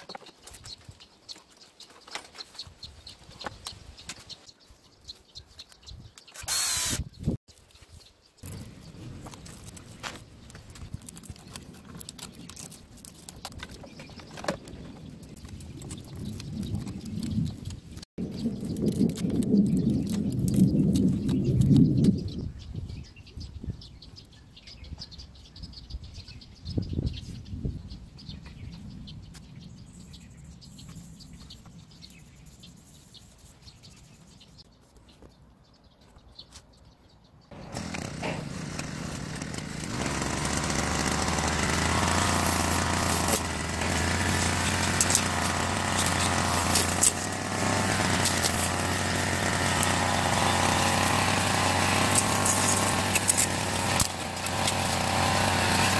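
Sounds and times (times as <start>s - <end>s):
brush cutter engine running: 6.3s - 7.1s, 37.5s - 55.9s.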